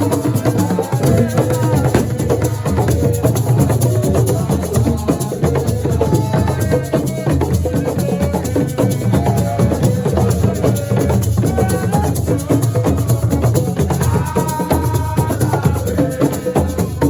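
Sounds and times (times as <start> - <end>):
drums: 0.0 - 17.0
shakers: 0.0 - 17.0.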